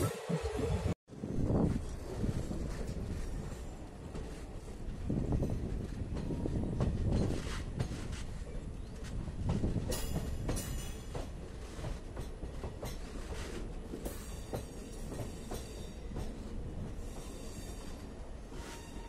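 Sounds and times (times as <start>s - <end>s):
train wheels rumbling on rails: 0.1s - 19.0s
wheels clicking over rail joints: 5.0s - 18.1s.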